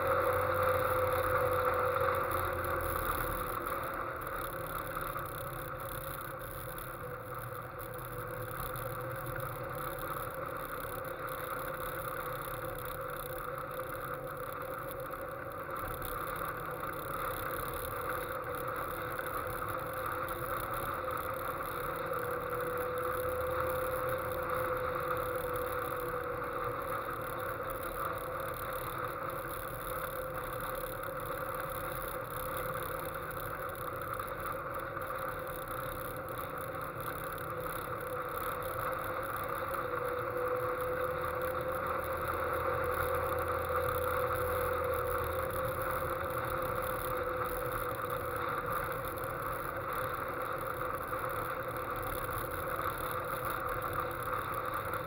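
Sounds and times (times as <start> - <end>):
sports car engine: 0.0 - 55.0.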